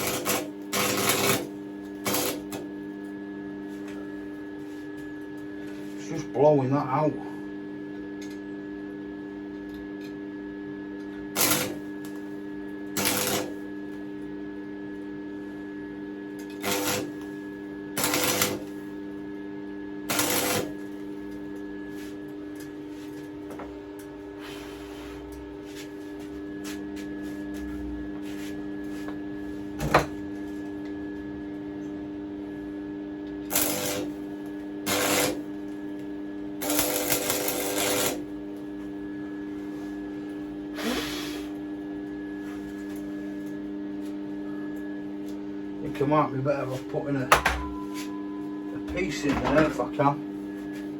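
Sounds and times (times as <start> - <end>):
stick welder arc bursts: 0.0 - 2.6, 11.4 - 11.9, 13.0 - 13.6, 16.5 - 17.4, 18.0 - 18.8, 20.1 - 20.9, 33.5 - 35.4, 36.6 - 38.3
steady hum: 0.0 - 50.9.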